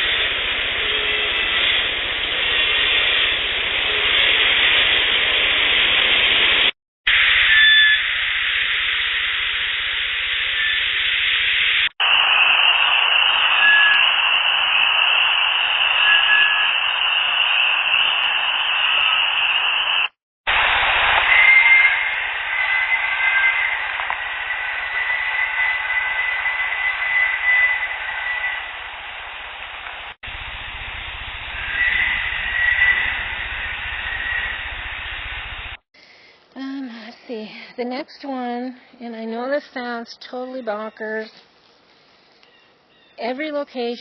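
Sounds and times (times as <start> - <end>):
faint whistle-like tones: 0.0 - 4.5, 7.1 - 9.3, 10.1 - 20.2, 21.0 - 30.2, 31.3 - 35.3
loud steady hiss: 0.0 - 37.2
high-pitched drone: 7.1 - 35.6.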